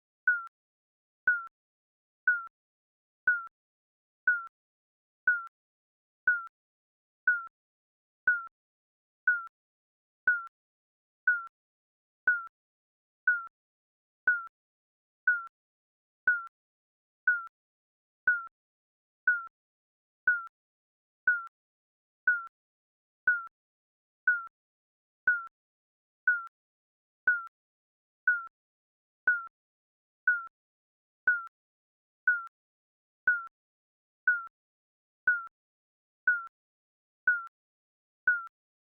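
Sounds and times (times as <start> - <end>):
digital countdown beep: 0.3 - 0.5, 1.3 - 1.5, 2.3 - 2.5, 3.3 - 3.5, 4.3 - 4.5, 5.3 - 5.5, 6.3 - 6.5, 7.3 - 7.5, 8.3 - 8.5, 9.3 - 9.5, 10.3 - 10.5, 11.3 - 11.5, 12.3 - 12.5, 13.3 - 13.5, 14.3 - 14.5, 15.3 - 15.5, 16.3 - 16.5, 17.3 - 17.5, 18.3 - 18.5, 19.3 - 19.5, 20.3 - 20.5, 21.3 - 21.5, 22.3 - 22.5, 23.3 - 23.5, 24.3 - 24.5, 25.3 - 25.5, 26.3 - 26.5, 27.3 - 27.5, 28.3 - 28.5, 29.3 - 29.5, 30.3 - 30.5, 31.3 - 31.5, 32.3 - 32.5, 33.3 - 33.5, 34.3 - 34.5, 35.3 - 35.5, 36.3 - 36.5, 37.3 - 37.5, 38.3 - 38.5.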